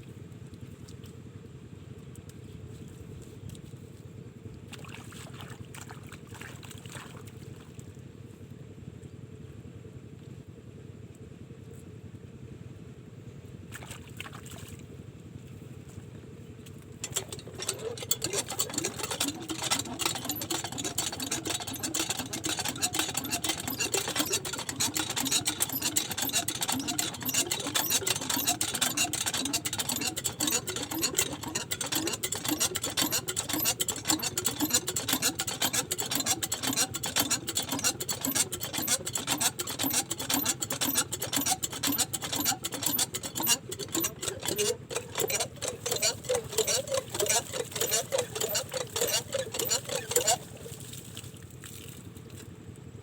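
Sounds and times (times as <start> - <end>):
diesel pump engine clattering: 15.9 - 51.6.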